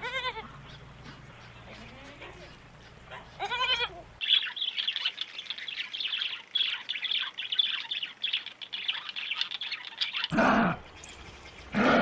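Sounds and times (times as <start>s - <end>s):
wavering bleat: 0.0s - 0.5s, 3.4s - 4.0s
small birds chirping: 0.0s - 11.9s.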